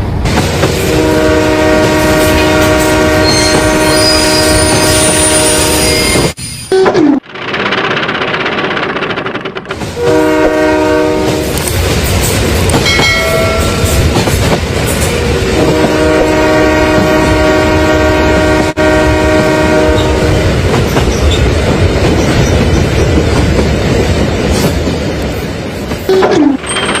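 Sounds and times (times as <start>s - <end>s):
train rumbling and clattering: 0.0s - 27.0s
train horn: 0.8s - 6.2s, 10.0s - 11.6s, 15.2s - 20.5s.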